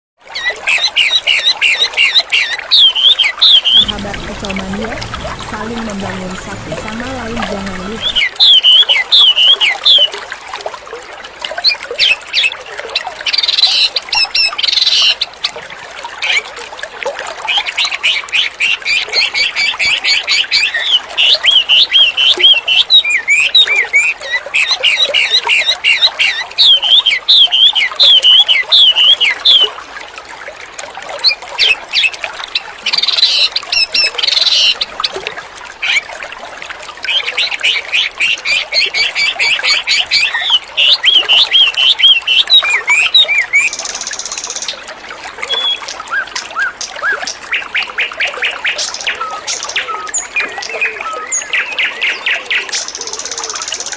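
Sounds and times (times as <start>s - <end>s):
songbird singing: 0.4s - 10.1s.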